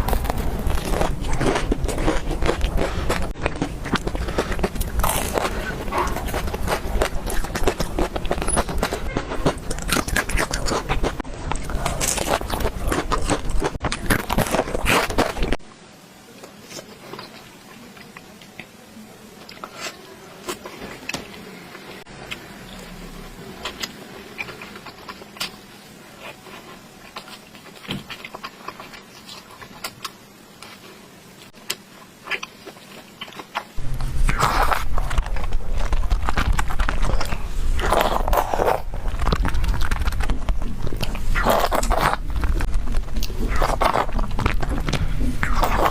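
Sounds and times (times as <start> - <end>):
crackly biting and chewing: 0.0 - 15.6, 23.6 - 25.6, 26.2 - 45.9
low rumble: 33.8 - 45.8.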